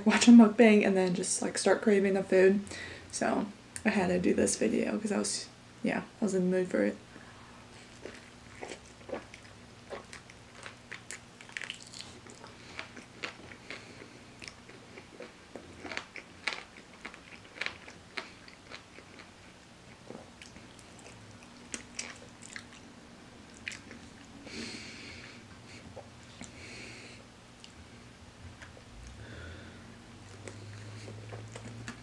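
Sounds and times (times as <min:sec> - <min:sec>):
crunching fried chicken: 0:07.9 - 0:24.3.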